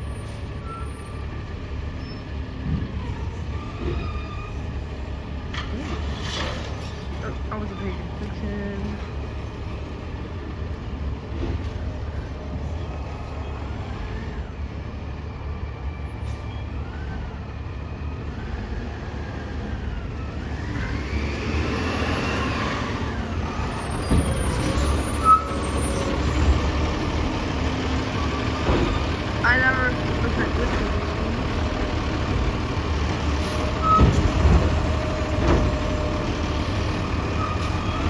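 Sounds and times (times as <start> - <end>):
garbage truck engine rumbling: 0.0 - 38.0
engine revving with rising whine: 20.2 - 23.8.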